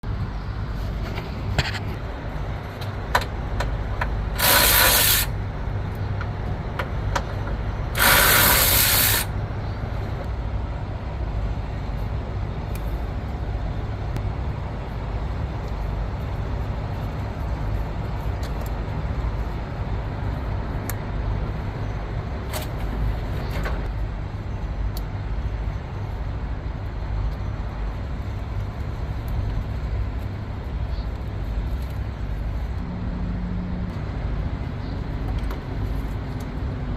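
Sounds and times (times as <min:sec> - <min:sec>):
truck engine rumbling: 0:00.0 - 0:36.9
loud air hisses: 0:04.4 - 0:05.4, 0:07.9 - 0:09.3.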